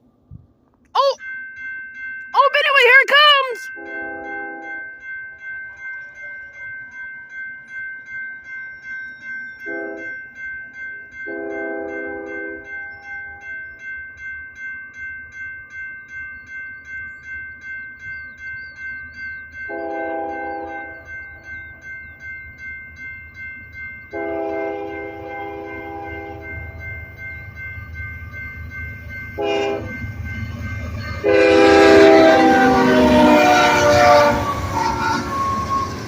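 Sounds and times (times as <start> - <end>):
crossing bell dinging: 1.0 - 36.0
locomotive horn blasts: 3.8 - 4.7, 9.6 - 10.1, 19.7 - 21.0, 24.1 - 26.5, 29.4 - 30.0, 31.1 - 36.0
train rumble: 18.1 - 36.0.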